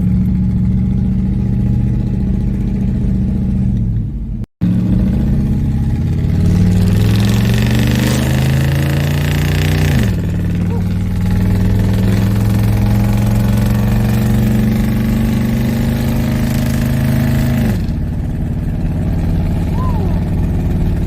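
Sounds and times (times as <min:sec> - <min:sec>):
pickup truck engine revving: 0:04.6 - 0:21.0.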